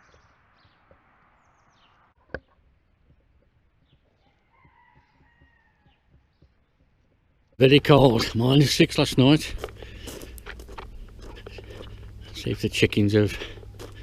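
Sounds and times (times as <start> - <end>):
faint rooster crowing: 4.2 - 6.3.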